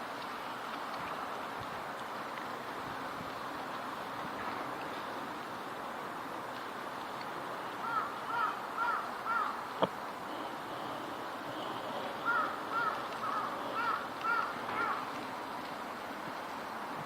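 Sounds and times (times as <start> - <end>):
background hiss: 0.0 - 17.0
crows cawing: 7.8 - 9.6, 12.2 - 15.1.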